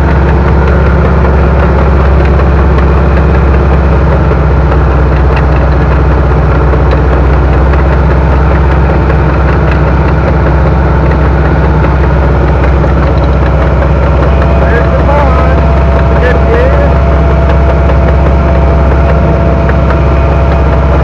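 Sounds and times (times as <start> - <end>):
heavy machine engine droning: 0.0 - 21.0.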